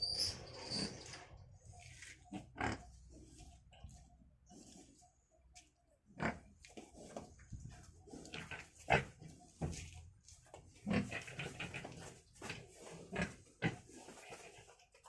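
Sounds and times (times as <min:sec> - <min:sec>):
pigs grunting: 0:02.3 - 0:03.4, 0:06.1 - 0:07.0, 0:08.1 - 0:09.3, 0:10.8 - 0:14.5.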